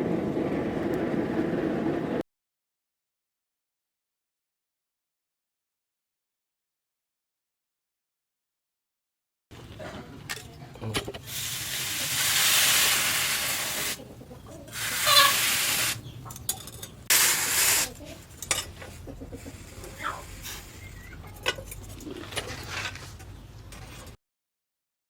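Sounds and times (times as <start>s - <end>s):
hot steel hissing in quench: 11.2s - 14.0s, 14.7s - 16.0s, 17.1s - 18.0s.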